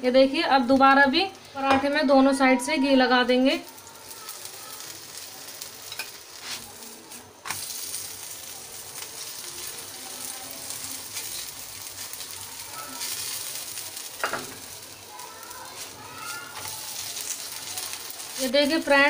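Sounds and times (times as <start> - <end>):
flatbread sizzling on a hot pan: 0.0 - 19.0
steel spoon striking a pan: 5.8 - 6.2.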